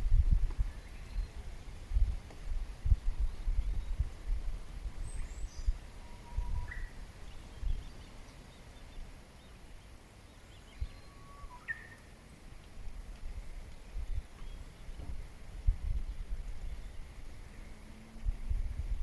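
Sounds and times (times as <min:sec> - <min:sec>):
rising whistled bird notes: 0:05.0 - 0:07.0, 0:10.6 - 0:12.0
birds calling and chirping: 0:05.0 - 0:12.1
descending bird twitter: 0:05.1 - 0:08.0, 0:10.5 - 0:12.0.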